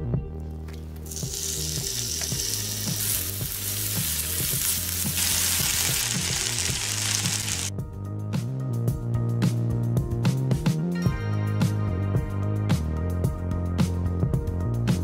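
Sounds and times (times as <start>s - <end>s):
soft background music: 0.0s - 15.0s
chicken sizzling in oil: 1.0s - 7.7s.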